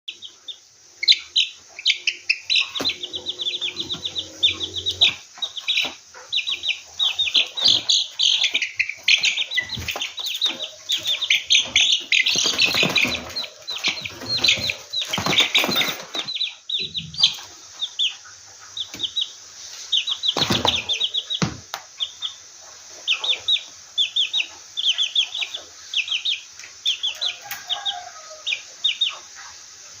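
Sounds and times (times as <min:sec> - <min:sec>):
bird chirping rapidly: 0:00.1 - 0:22.5
scuffling and knocks: 0:07.6 - 0:16.4
wings flapping: 0:09.2 - 0:16.3.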